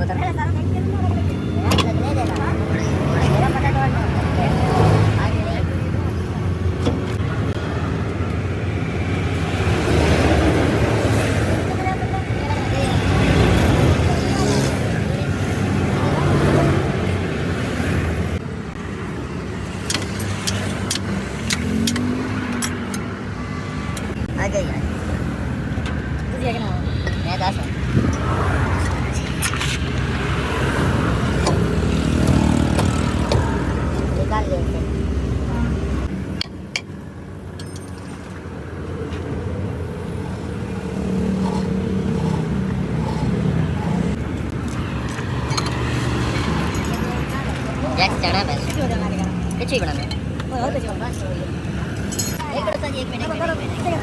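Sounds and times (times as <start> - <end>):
road traffic noise: 0.0 - 54.0
vehicle engine hum and rumble: 0.0 - 54.0
vehicle engine running: 39.4 - 54.0.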